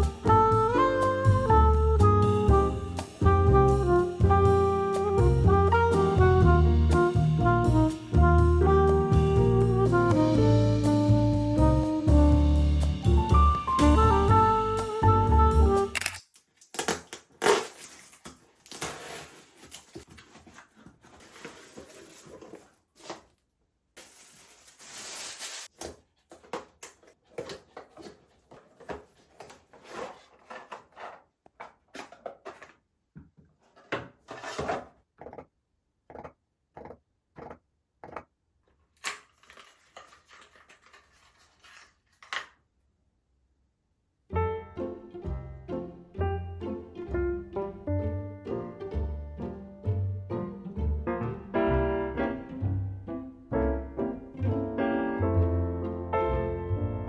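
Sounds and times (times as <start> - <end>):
rustling: 17.4 - 23.3, 24.0 - 25.7, 39.0 - 42.6
objects knocking and clicking: 25.8 - 35.5.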